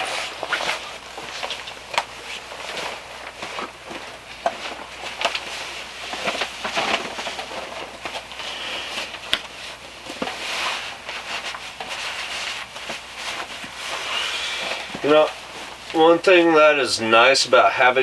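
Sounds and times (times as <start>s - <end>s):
rustling: 0.0s - 17.7s.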